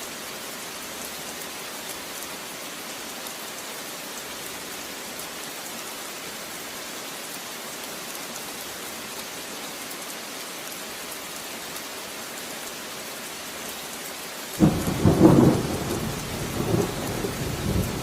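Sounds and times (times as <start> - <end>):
rain pattering on surfaces: 0.0 - 18.0
loud thunder clap: 14.6 - 18.0.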